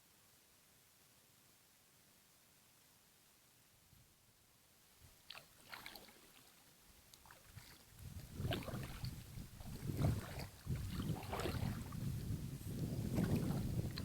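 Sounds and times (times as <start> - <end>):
paddle splashing in water: 5.2 - 14.0
wind rumbling on microphone: 7.9 - 14.0.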